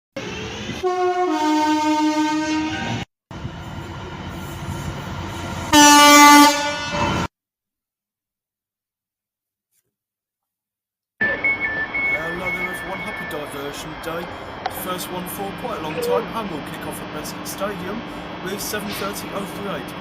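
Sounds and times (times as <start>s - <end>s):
passing train rumble: 0.2s - 7.3s, 11.2s - 20.0s
two-tone train horn blast: 0.8s - 3.0s, 5.7s - 7.3s.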